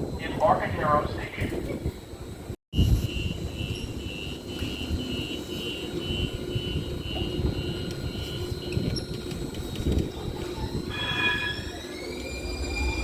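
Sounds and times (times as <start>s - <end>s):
train rumble: 0.0s - 13.0s
train door warning beeping: 2.8s - 13.0s.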